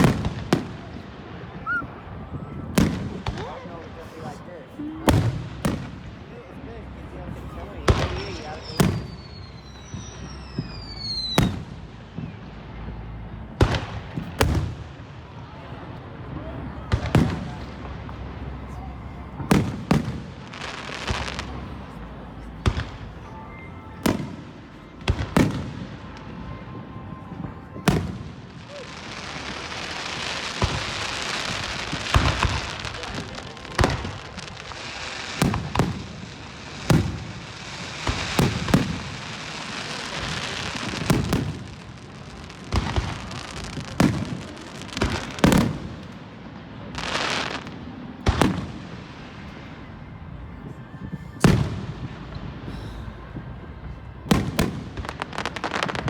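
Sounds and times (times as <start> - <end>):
fireworks bangs: 0.0 - 56.0
crackling hiss: 28.2 - 49.6.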